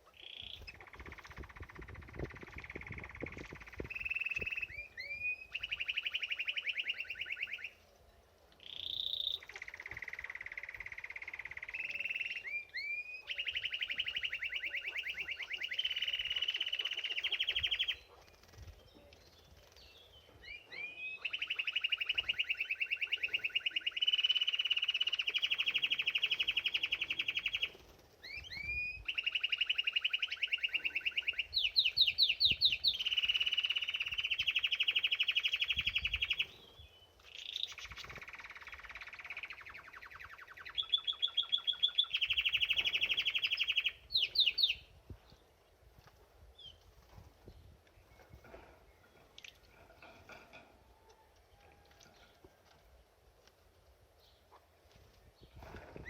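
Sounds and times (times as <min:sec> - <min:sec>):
canary singing trills: 0:00.0 - 0:07.8, 0:08.6 - 0:45.6.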